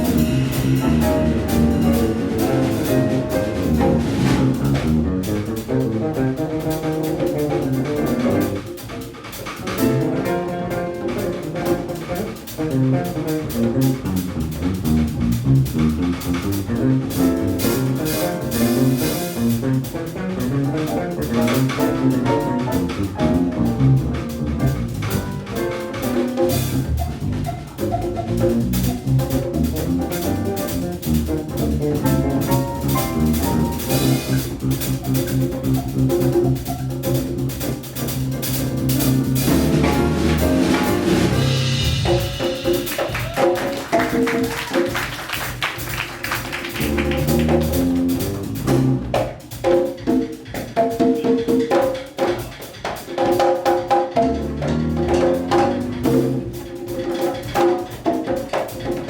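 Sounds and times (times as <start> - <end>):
electric bass: 0.0 - 8.7, 9.5 - 43.4, 46.7 - 49.3, 54.2 - 56.7
drum kit: 0.0 - 59.0
piano: 0.0 - 59.0
hand percussion: 40.4 - 48.5.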